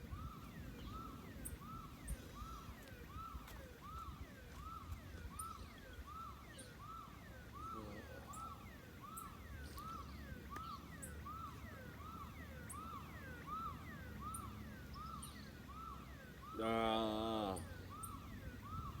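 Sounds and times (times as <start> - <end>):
electronic alarm whooping: 16.5 - 19.0.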